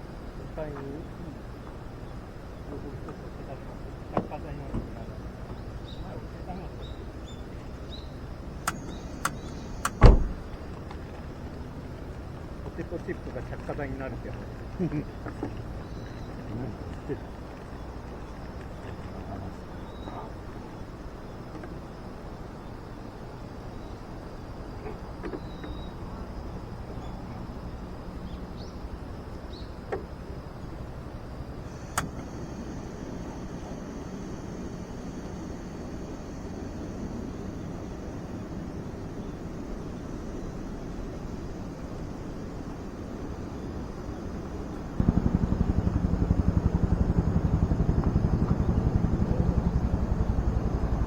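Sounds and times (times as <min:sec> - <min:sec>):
sharp clicks or snaps: 0:08.7 - 0:10.1
engine idling: 0:29.8 - 0:38.2, 0:44.7 - 0:51.0
low rumble: 0:44.8 - 0:51.0.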